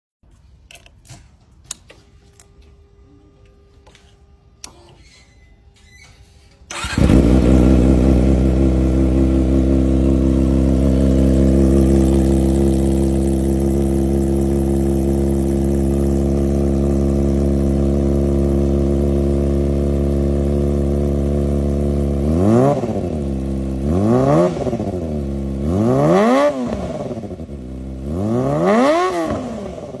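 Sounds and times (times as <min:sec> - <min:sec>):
motorcycle engine starting and idling: 0:05.8 - 0:30.0
motorcycle engine revving: 0:06.7 - 0:30.0.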